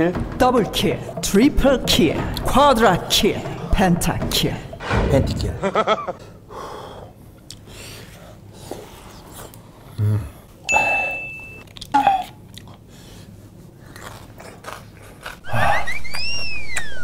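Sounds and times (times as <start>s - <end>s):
short high beep: 10.7s - 11.6s
person chewing with wet mouth sounds: 11.6s - 15.8s.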